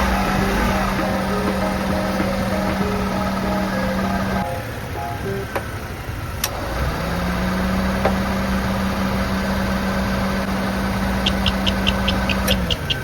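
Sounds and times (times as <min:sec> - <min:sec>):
fast even ticking: 0:00.0 - 0:05.6, 0:11.0 - 0:13.0
truck engine idling hum: 0:07.4 - 0:13.0.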